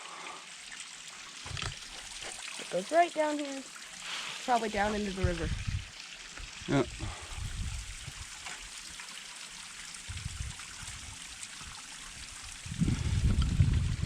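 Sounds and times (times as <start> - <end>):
small waterfall trickling and splashing: 0.0 - 14.0
wind buffeting microphone: 4.8 - 5.9, 6.9 - 8.3, 10.1 - 11.2, 12.6 - 14.0.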